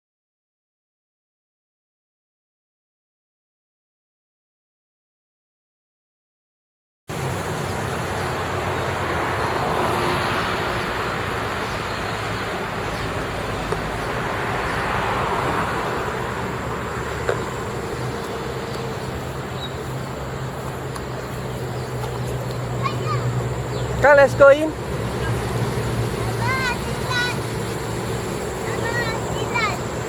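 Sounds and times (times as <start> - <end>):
low engine hum: 7.1 - 30.0
vehicles passing: 7.1 - 30.0.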